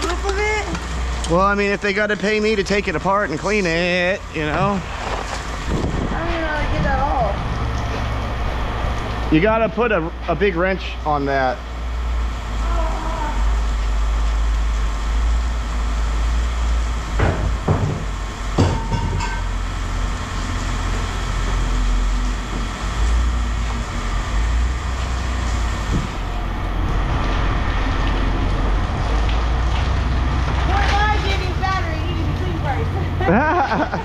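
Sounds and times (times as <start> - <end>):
engine low rumble: 0.0 - 34.0
metal clanks: 18.6 - 19.6.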